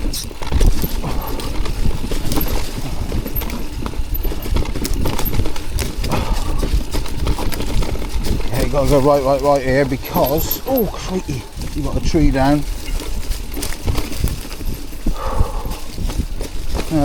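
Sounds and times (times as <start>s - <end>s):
bike rattling over roots: 0.0s - 17.0s
tyre rumble: 0.0s - 17.0s
wind on microphone: 0.0s - 17.0s.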